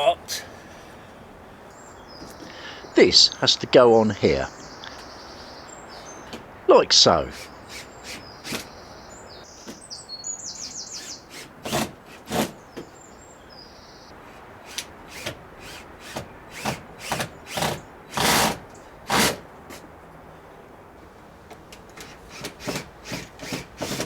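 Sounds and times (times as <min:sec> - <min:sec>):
bird chirping: 0:00.0 - 0:11.7, 0:12.4 - 0:14.8
tools scraping and knocking on timber: 0:16.0 - 0:19.9.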